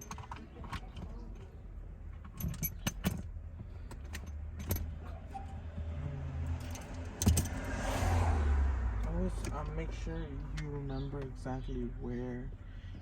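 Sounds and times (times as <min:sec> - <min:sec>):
metal parts clinking: 0:02.2 - 0:03.3.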